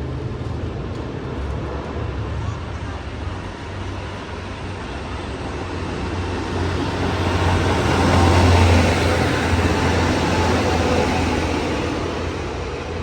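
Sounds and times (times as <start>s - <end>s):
railcar engine low drone: 0.0s - 13.0s.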